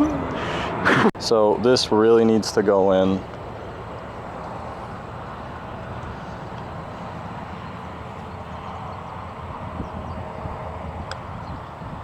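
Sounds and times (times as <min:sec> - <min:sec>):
low rumbling hum: 0:00.0 - 0:01.0.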